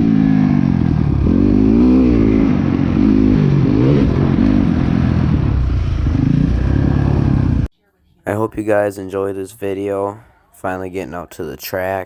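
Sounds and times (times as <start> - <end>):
dirt bike engine revving: 0.0 - 7.7.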